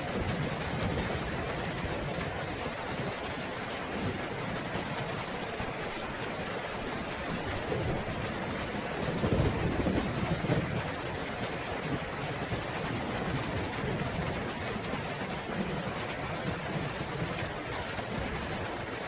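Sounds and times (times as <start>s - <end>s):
heavy rain: 0.0s - 19.0s
thunder rumbling: 7.0s - 14.6s.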